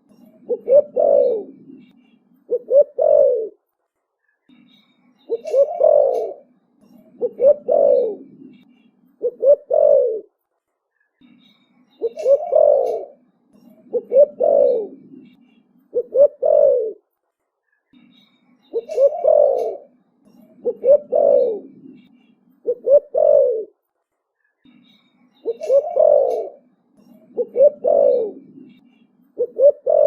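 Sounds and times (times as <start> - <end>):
dove cooing: 0.2 - 1.9, 2.5 - 3.6, 5.3 - 6.5, 7.1 - 8.6, 9.2 - 10.3, 12.0 - 13.2, 13.8 - 17.0, 18.8 - 23.8, 25.4 - 28.8, 29.4 - 30.0.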